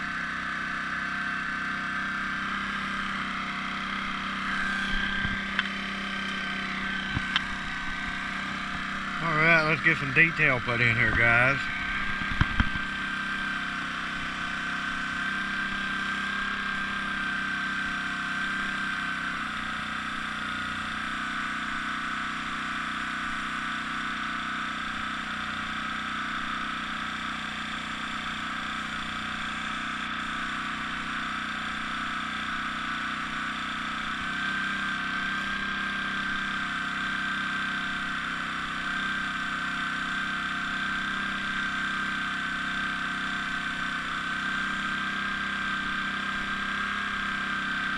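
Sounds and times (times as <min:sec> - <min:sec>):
small compressor humming: 0:00.0 - 0:47.9
high whine: 0:02.3 - 0:15.9.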